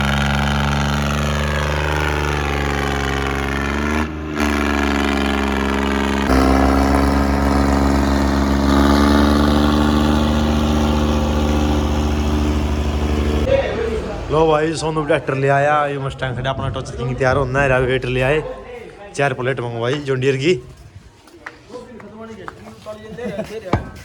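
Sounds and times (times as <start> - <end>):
tractor diesel engine running: 0.0 - 15.3.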